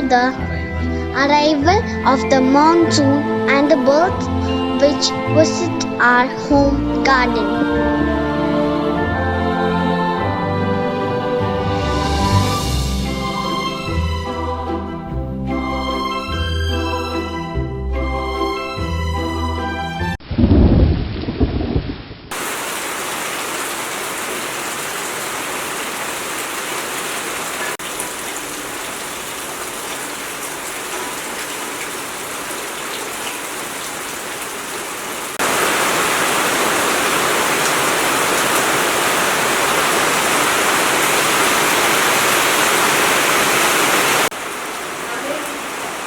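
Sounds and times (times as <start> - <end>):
low rumble of thunder: 20.2 - 22.4
steady rain hissing: 22.3 - 46.0.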